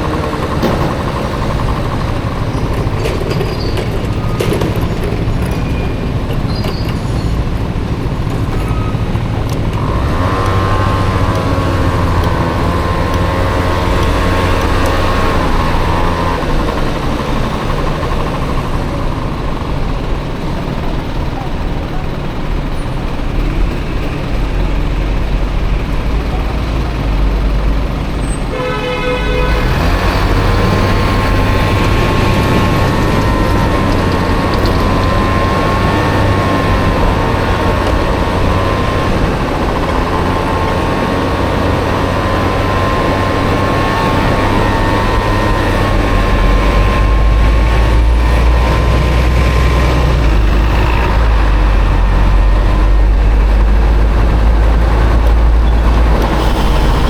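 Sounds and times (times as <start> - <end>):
scooter engine running: 0.0 - 57.0
horn toot: 28.5 - 31.2.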